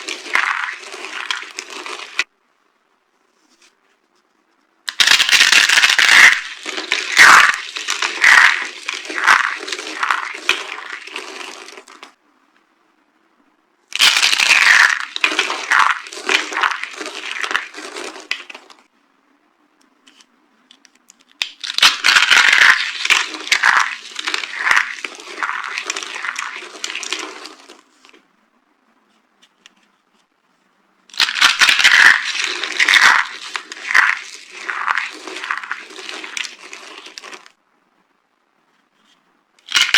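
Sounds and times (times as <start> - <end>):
dry soap crunching and crackling: 0.0 - 2.3, 4.9 - 12.2, 13.9 - 18.8, 21.4 - 28.2, 31.1 - 37.5, 39.6 - 39.9.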